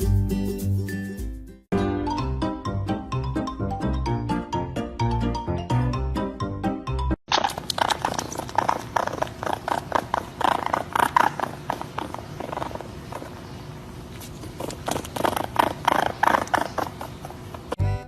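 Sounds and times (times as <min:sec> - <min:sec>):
animal calls: 0:07.6 - 0:13.7, 0:14.4 - 0:17.8.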